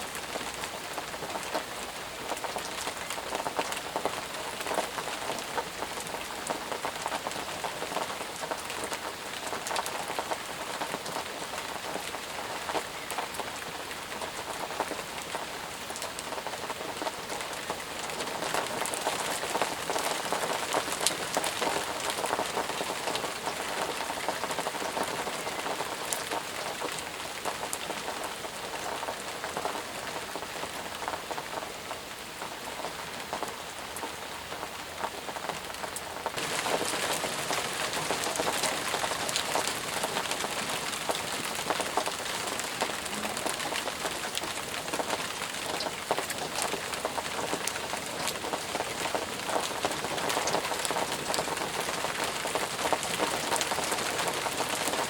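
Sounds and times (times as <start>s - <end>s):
heavy rain falling: 0.0s - 55.0s
raindrops pattering: 0.0s - 55.0s.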